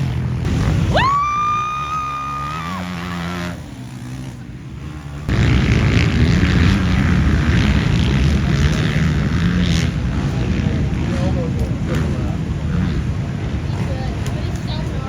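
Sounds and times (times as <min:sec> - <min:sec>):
dirt bike engines racing: 0:00.0 - 0:15.0
rushing noise: 0:05.0 - 0:10.3.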